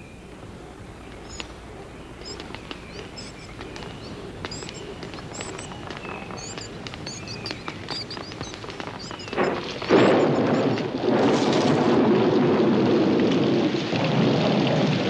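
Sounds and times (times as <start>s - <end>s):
birds chirping: 0.0s - 11.0s
low background hiss: 0.0s - 11.0s
sharp clicks: 1.2s - 1.6s, 2.2s - 10.9s.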